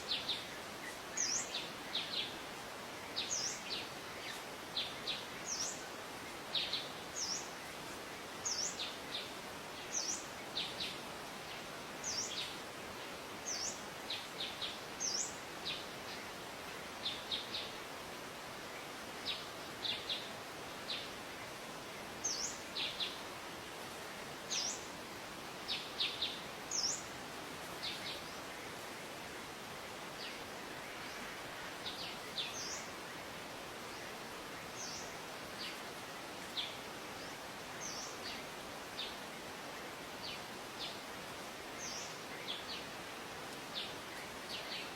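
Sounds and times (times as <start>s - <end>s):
birds chirping: 0.0s - 7.8s, 18.9s - 23.2s, 25.6s - 27.2s, 29.9s - 39.3s
steady background hiss: 0.0s - 44.9s.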